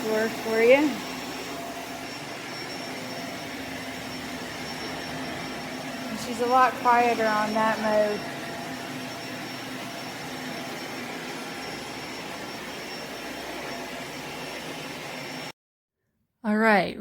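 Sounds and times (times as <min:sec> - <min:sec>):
faint high whine: 0:00.0 - 0:15.5
vacuum cleaner running: 0:00.0 - 0:15.5.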